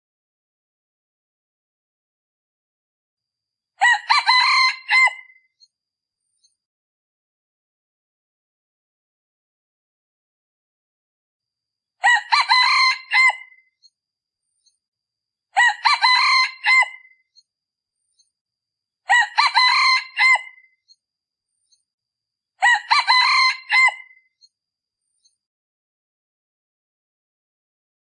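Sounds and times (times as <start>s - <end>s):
junglefowl crowing: 3.8s - 5.4s, 12.0s - 13.6s, 15.6s - 17.2s, 19.1s - 20.7s, 22.6s - 24.2s.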